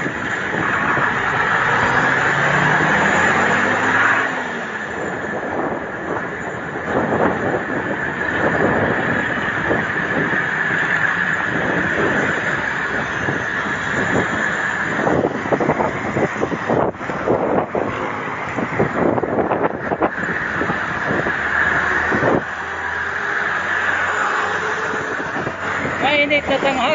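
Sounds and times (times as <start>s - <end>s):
road and traffic noise: 0.0s - 26.9s
wind buffeting microphone: 0.0s - 26.9s.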